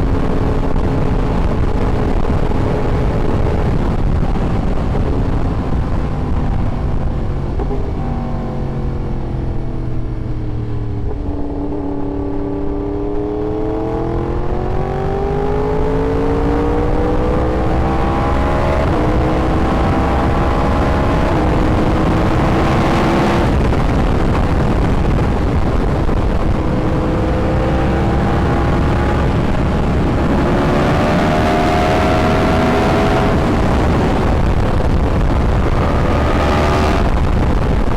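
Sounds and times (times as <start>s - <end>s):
low rumble: 0.0s - 37.9s
motorcycle engine pitch changing: 6.3s - 37.9s.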